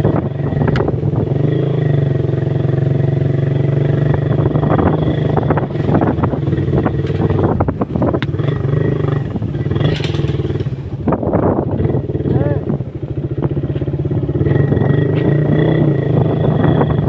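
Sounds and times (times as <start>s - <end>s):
motorcycle engine running: 0.0s - 17.0s
short crackles and knocks: 5.4s - 8.6s.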